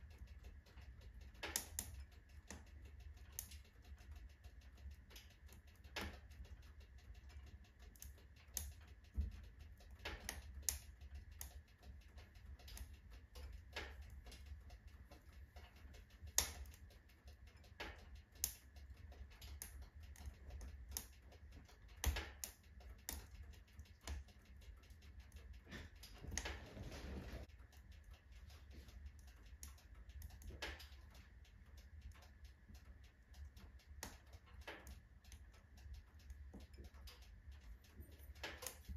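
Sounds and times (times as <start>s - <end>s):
firewood crackling and popping: 1.4s - 2.7s, 16.3s - 16.8s, 38.0s - 38.9s.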